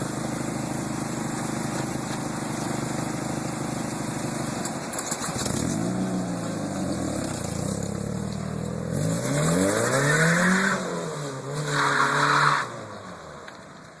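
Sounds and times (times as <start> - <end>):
car engine revving: 5.2 - 13.1.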